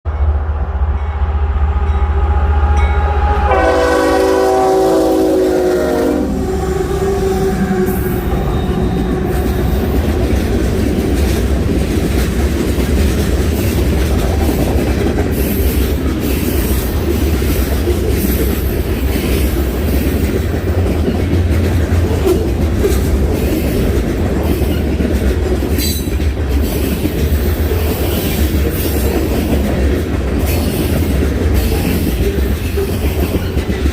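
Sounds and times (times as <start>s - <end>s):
train rumbling past: 0.1s - 33.9s
train horn blast: 0.9s - 9.9s.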